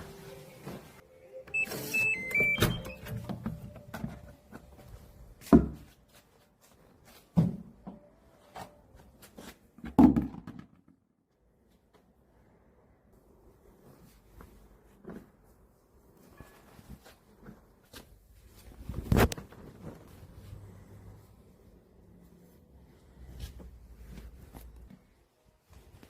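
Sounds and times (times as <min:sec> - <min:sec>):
short electronic beeps: 0:01.4 - 0:03.1.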